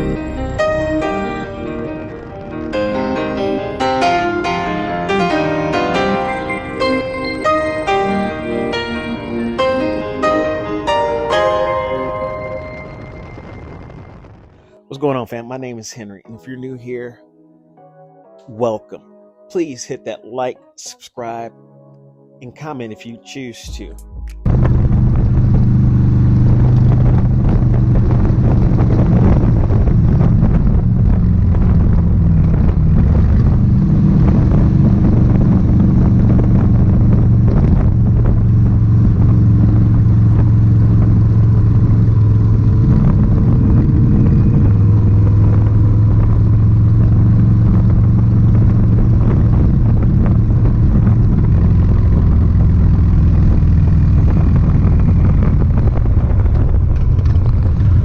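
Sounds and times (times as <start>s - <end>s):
motorcycle engine running: 24.4s - 58.0s.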